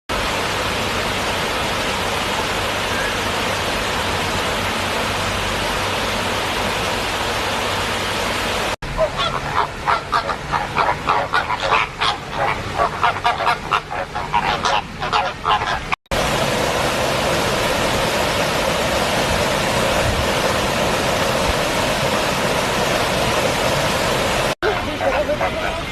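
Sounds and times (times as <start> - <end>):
steady rushing noise: 0.1 - 25.9
rapid honking bird calls: 8.8 - 16.0.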